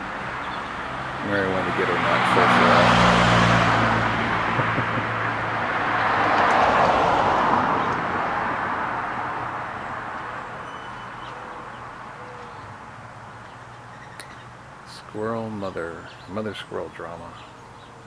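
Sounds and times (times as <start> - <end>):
car passing by: 0.8 - 10.5.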